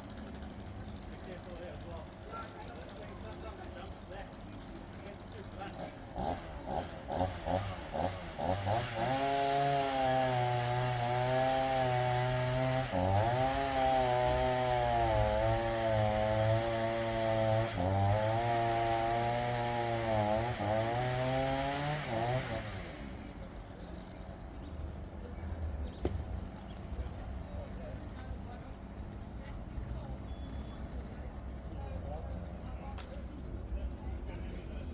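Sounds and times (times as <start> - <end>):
chainsaw cutting through log: 2.8 - 23.4.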